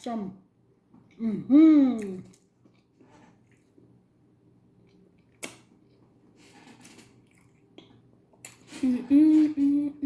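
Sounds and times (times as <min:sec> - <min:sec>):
person chewing food: 0:06.8 - 0:08.7.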